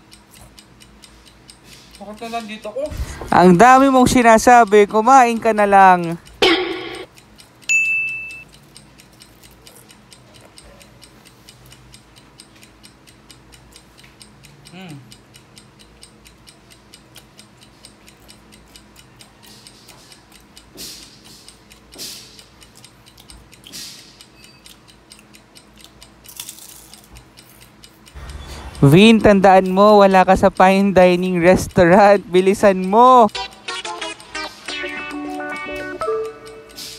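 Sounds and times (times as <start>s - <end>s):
rapid even ticking: 0.0s - 36.9s
crunchy spring rolls being chewed: 8.6s - 10.6s, 24.7s - 27.7s.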